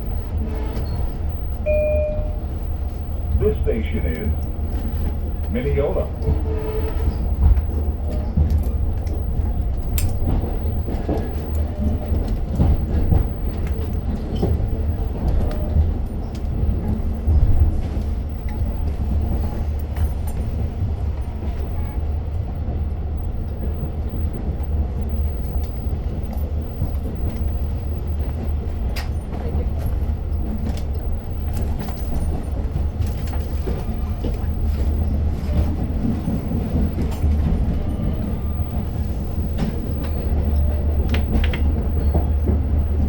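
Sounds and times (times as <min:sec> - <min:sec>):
train coach low rumble: 0:00.0 - 0:43.0
clicks and knocks from train car: 0:04.4 - 0:20.8, 0:25.0 - 0:43.0.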